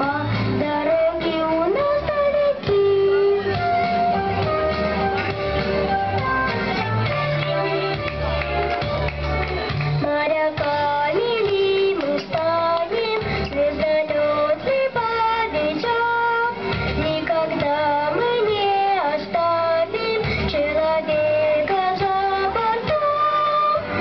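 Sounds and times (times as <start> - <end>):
girl singing: 0.0 - 3.6, 10.0 - 24.0
instrumental accompaniment with bass: 0.0 - 24.0.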